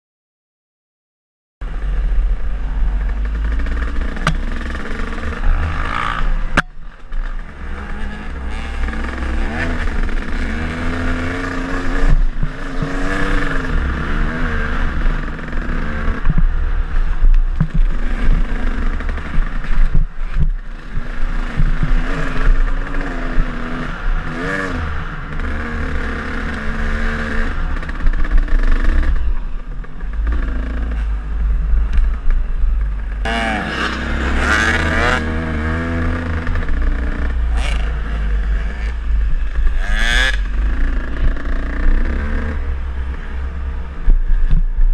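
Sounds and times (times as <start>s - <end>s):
wind rumble on microphone: 1.6s - 26.7s, 27.3s - 44.9s
dirt bike engine revving: 1.6s - 44.3s.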